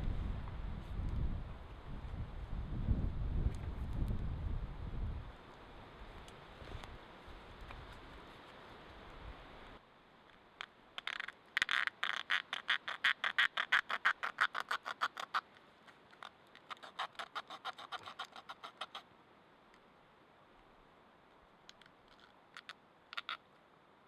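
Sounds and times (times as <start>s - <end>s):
animal rapid chattering call: 16.7s - 19.0s.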